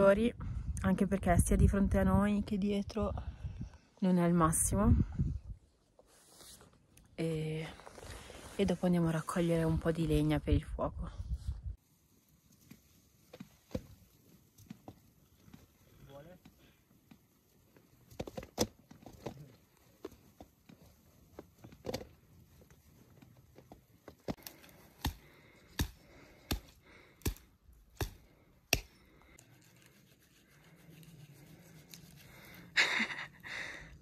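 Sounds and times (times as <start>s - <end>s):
dry wood cracking: 12.6s - 29.8s.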